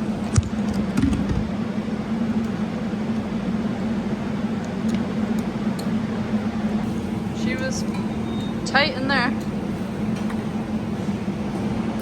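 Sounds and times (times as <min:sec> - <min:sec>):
motorbike engine humming: 0:06.4 - 0:12.0.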